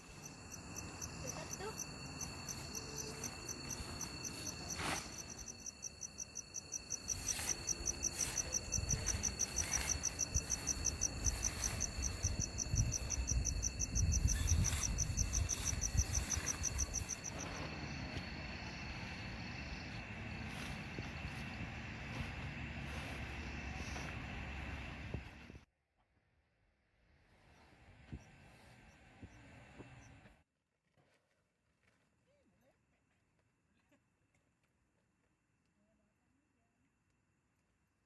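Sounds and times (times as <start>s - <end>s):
insects chirping: 0.0s - 25.3s.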